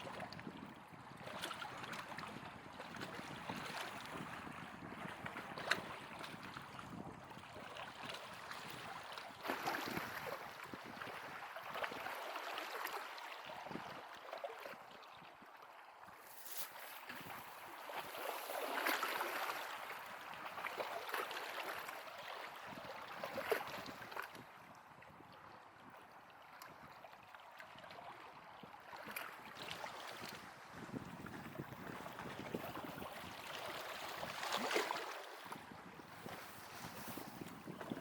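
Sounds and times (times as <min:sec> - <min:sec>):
wind rumble on microphone: 0:00.0 - 0:12.0, 0:13.5 - 0:14.1, 0:22.6 - 0:27.0, 0:29.1 - 0:38.0
lake water lapping at shore: 0:00.0 - 0:38.0.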